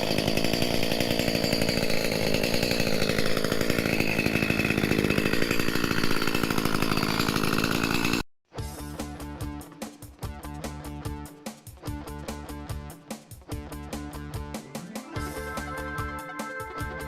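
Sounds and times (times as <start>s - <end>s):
chainsaw cutting wood: 0.0s - 8.3s
guitar music: 8.6s - 17.0s.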